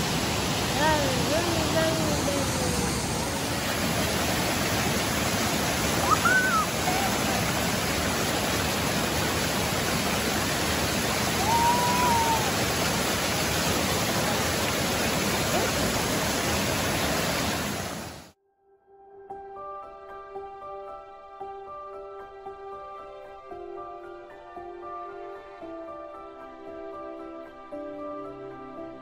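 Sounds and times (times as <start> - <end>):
stream rushing over rocks: 0.0 - 18.4.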